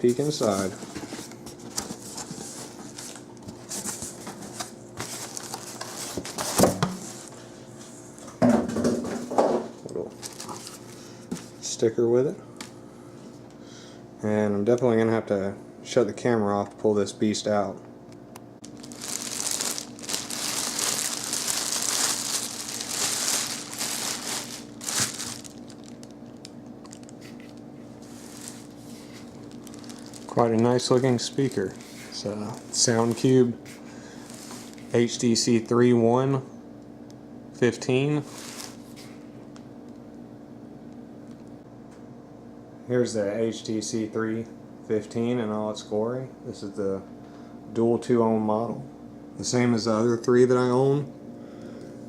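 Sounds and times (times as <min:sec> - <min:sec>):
cardboard packaging rustling: 0:00.0 - 0:07.3, 0:10.2 - 0:11.6, 0:18.6 - 0:33.4, 0:34.2 - 0:35.0, 0:38.2 - 0:39.0.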